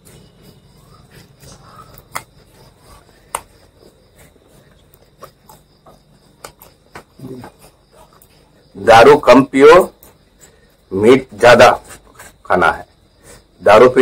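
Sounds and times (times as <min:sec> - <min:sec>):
man chewing crunchy food: 0:00.0 - 0:08.7.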